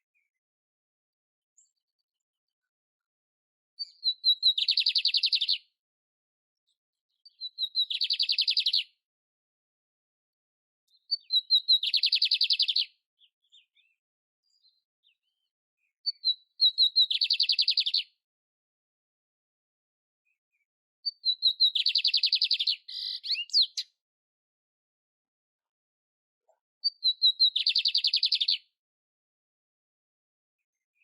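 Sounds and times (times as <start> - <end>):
bird singing trills: 3.8 - 5.6, 7.2 - 8.9, 10.9 - 15.4, 16.0 - 18.1, 21.1 - 24.0, 26.8 - 28.7
faint bird chips: 21.8 - 23.8.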